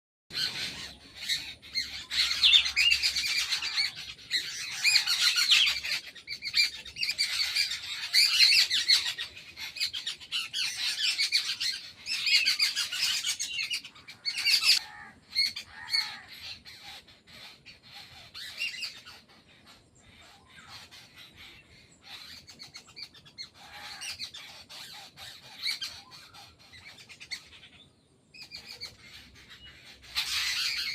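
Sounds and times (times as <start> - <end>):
birds chirping and squawking: 0.3 - 30.9.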